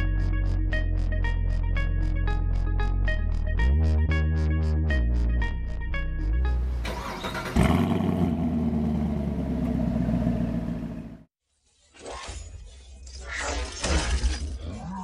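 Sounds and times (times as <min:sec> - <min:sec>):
synth music: 0:00.0 - 0:07.6
car engine starting and running: 0:06.3 - 0:11.3.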